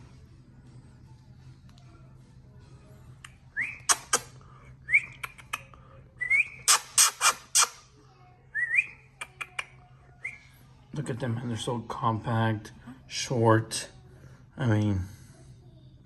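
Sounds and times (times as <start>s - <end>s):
quick sharp clicking: 3.9s - 4.3s, 6.7s - 7.8s.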